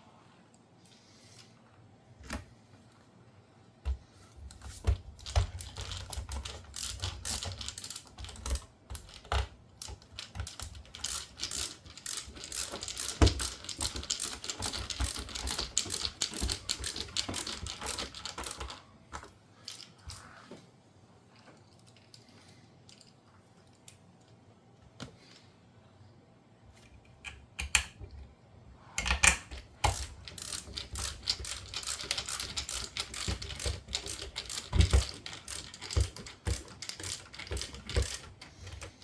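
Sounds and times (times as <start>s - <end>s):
small parts and tools clicking: 3.9s - 20.4s, 21.4s - 24.4s, 26.8s - 28.1s, 29.0s - 39.0s.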